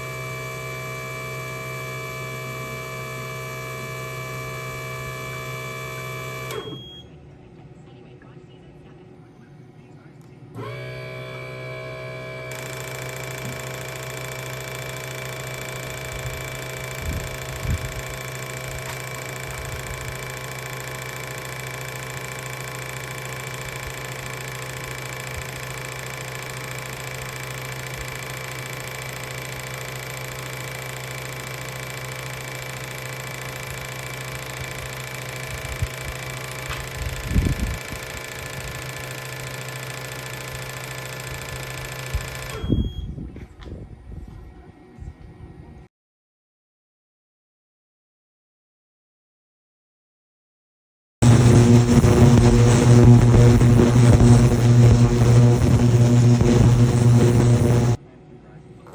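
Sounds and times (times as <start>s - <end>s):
machine running with mechanical pulsing: 0.0s - 7.1s, 10.2s - 43.1s, 51.2s - 58.0s.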